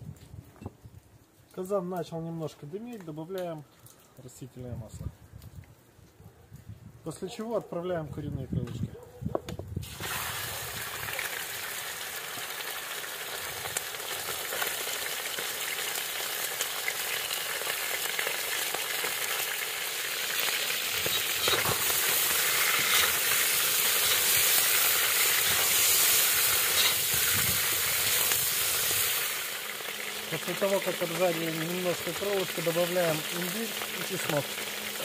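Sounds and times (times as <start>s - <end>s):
chicken sizzling in hot oil: 9.8s - 35.0s.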